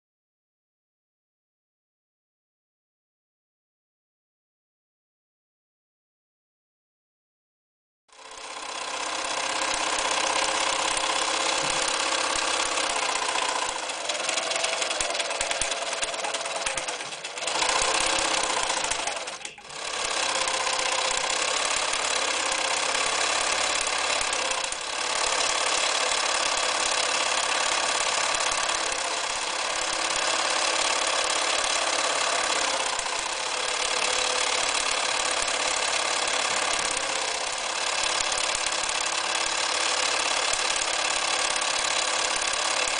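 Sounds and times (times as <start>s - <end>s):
electric sewing machine stitching: 8.1s - 42.9s.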